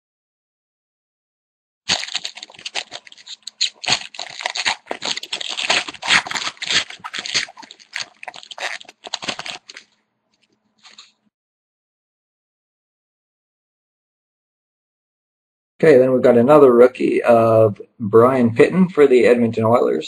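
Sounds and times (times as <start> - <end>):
foil wrapper tearing and crinkling: 1.9 - 11.2.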